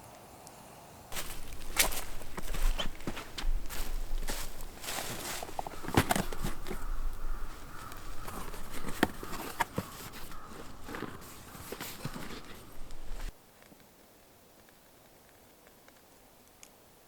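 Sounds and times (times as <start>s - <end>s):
footsteps on forest floor: 1.1s - 13.4s
sharp knocks and crunches: 1.2s - 13.3s.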